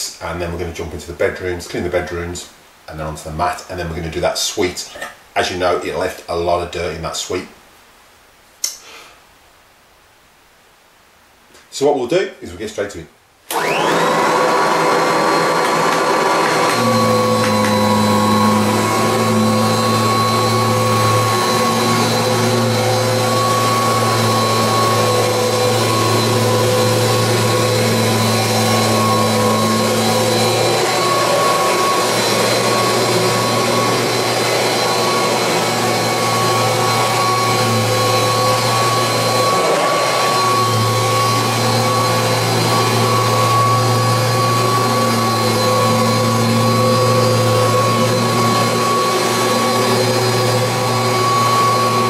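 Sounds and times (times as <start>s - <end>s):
vacuum cleaner motor whine: 13.5s - 52.0s.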